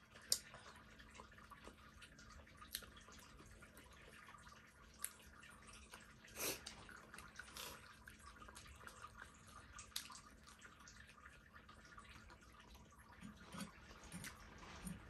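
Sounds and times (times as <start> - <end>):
chewing or slurping: 5.0 - 10.2.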